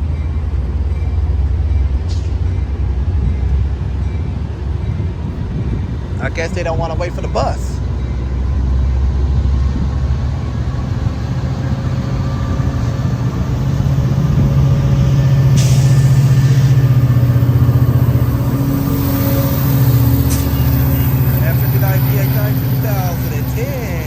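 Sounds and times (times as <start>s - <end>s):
heavy diesel engine running: 0.0s - 24.0s
air hiss: 15.5s - 16.8s.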